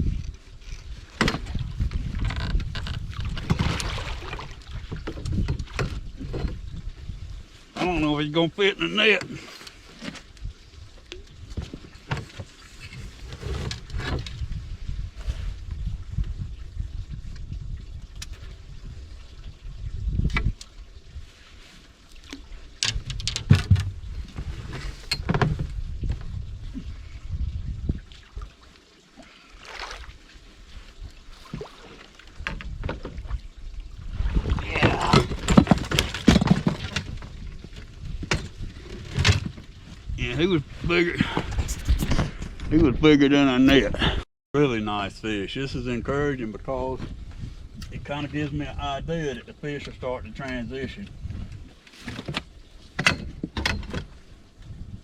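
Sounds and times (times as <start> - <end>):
water splashing against boat: 0.1 - 42.8
knocks and thuds against boat: 1.2 - 6.6, 11.5 - 14.4, 22.8 - 26.3, 32.4 - 33.4, 34.3 - 39.7, 50.8 - 54.2
water splashing: 3.1 - 5.1, 27.9 - 37.3.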